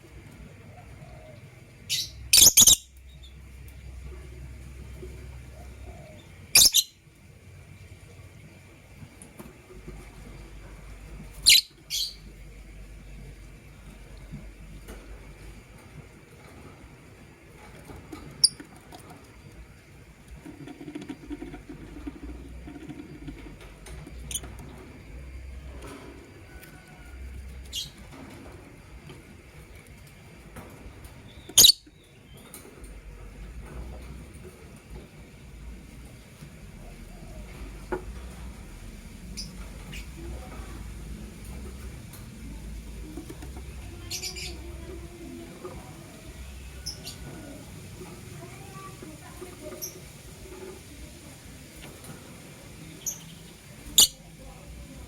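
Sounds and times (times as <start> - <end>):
lovebird chirps: 1.9 - 3.4, 6.5 - 7.0, 11.4 - 12.2, 31.3 - 32.0, 53.0 - 54.2
shrill bird chirp: 1.9 - 3.4, 6.6 - 7.0
scratching and shuffling: 12.3 - 31.5.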